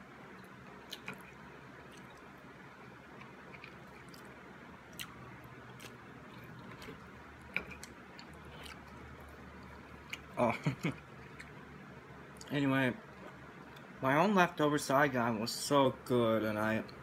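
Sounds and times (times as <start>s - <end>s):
person quietly chewing: 0.3s - 2.3s, 3.1s - 11.6s.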